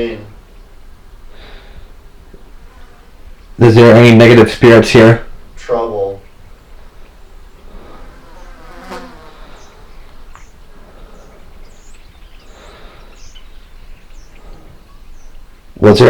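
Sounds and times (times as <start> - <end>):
insect buzzing: 7.2 - 11.9.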